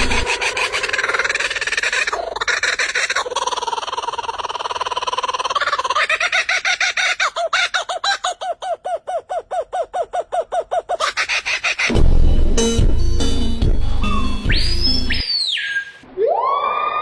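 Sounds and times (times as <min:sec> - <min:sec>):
bird calling and chirping: 0:14.0 - 0:16.0.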